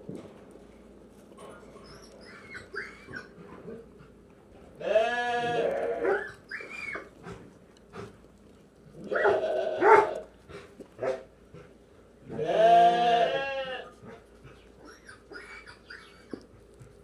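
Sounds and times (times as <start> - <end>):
lambs bleating: 4.8 - 6.2, 9.1 - 10.2, 12.3 - 13.9.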